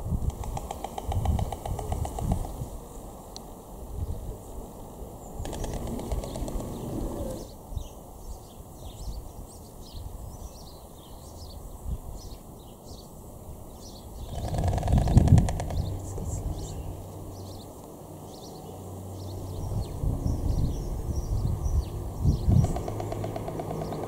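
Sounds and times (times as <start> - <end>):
small birds chirping: 0.2 - 24.0
low outdoor rumble: 14.3 - 24.0.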